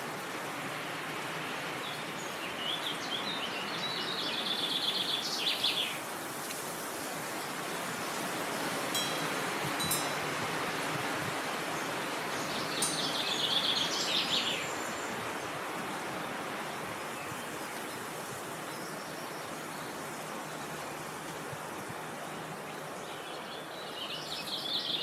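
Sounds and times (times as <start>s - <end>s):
songbird singing: 1.2s - 25.0s
wind noise: 6.0s - 18.7s
bird chirps: 12.4s - 15.0s.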